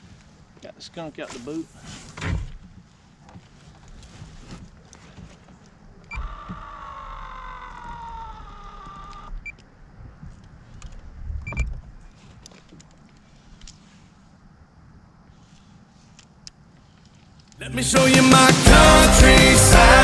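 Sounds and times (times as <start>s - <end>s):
thump: 2.2s - 2.6s.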